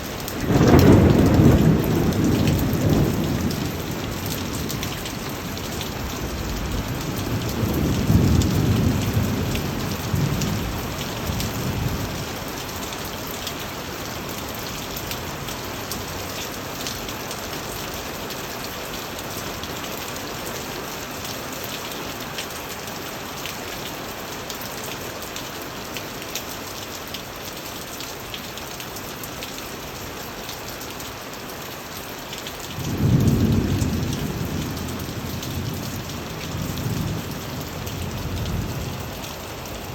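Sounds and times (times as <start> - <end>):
steady rain falling: 0.0 - 39.9
thunder rumbling: 0.4 - 12.2, 32.8 - 39.9.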